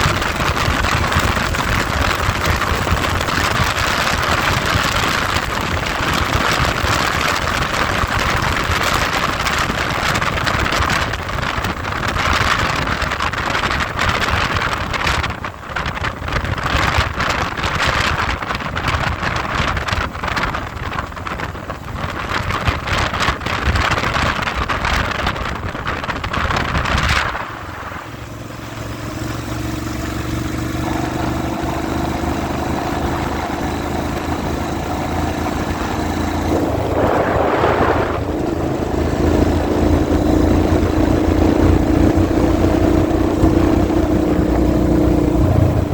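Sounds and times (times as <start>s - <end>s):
motorcycle engine humming: 0.0s - 16.6s, 23.4s - 45.9s
wind buffeting microphone: 0.0s - 45.9s.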